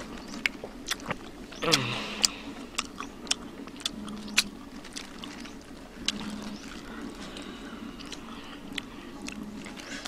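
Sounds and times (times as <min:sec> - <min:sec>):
low steady hum: 0:00.0 - 0:10.0
wet mouth chewing clicks: 0:00.4 - 0:07.2, 0:08.0 - 0:09.8.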